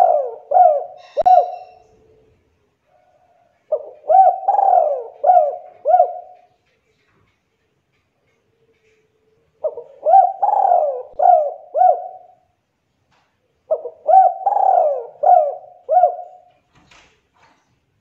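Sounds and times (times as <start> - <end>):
dove cooing: 0.0 - 2.3, 3.0 - 6.6, 9.5 - 12.6, 13.6 - 16.5.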